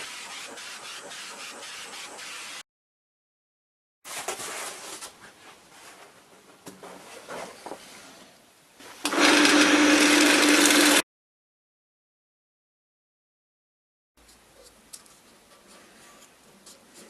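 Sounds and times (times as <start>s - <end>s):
power tool motor running: 9.1s - 11.0s.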